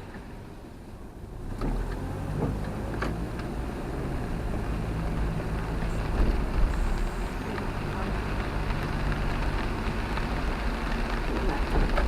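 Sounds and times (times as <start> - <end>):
camper van rumble on wet road: 0.0 - 12.0
rain and tyre spray hiss: 0.0 - 12.0
vehicle bump: 5.8 - 7.8.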